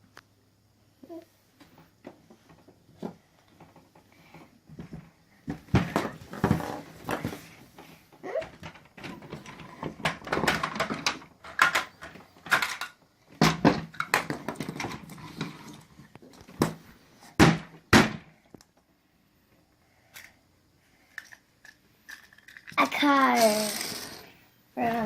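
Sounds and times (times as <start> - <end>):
plastic toys clicking and knocking: 8.2 - 16.8, 21.0 - 24.3.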